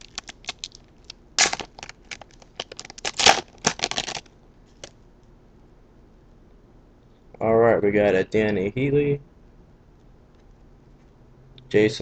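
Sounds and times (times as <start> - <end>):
wrapper crinkling and tearing: 0.0 - 4.9.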